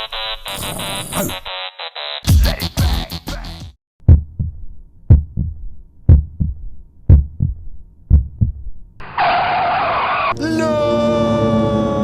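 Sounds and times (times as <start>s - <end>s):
heartbeat double thump: 4.0s - 8.8s.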